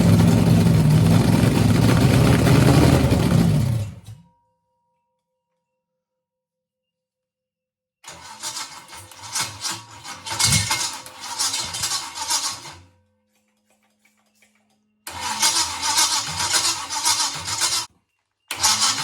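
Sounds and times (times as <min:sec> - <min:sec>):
car engine running loudly: 0:00.0 - 0:04.0.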